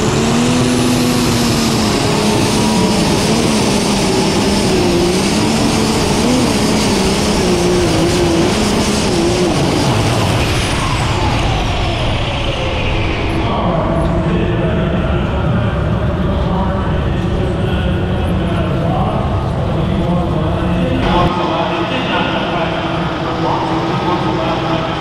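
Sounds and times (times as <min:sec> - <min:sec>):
diesel engine running under load: 0:00.0 - 0:25.0
high whine falling in pitch: 0:00.0 - 0:25.0.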